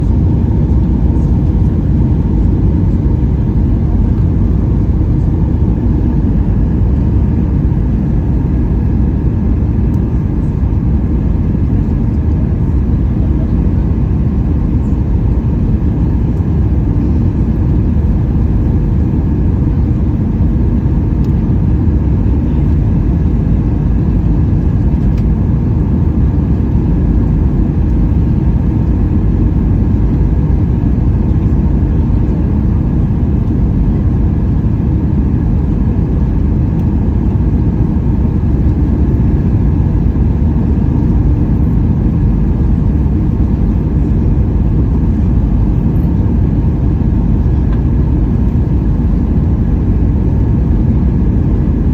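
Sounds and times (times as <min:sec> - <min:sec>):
jet engine cabin rumble: 0:00.0 - 0:51.9.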